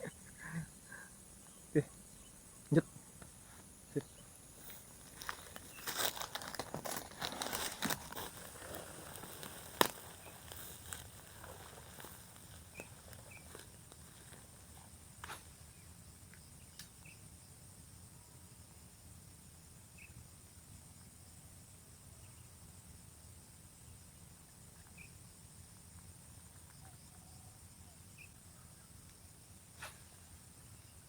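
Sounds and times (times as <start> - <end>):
faint chirps: 0.0 - 6.6, 7.6 - 14.4
high insect drone: 0.0 - 31.0
rustling: 4.5 - 15.4.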